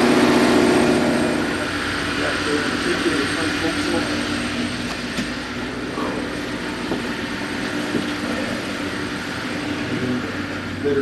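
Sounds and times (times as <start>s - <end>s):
ship machinery hum: 0.0s - 11.0s.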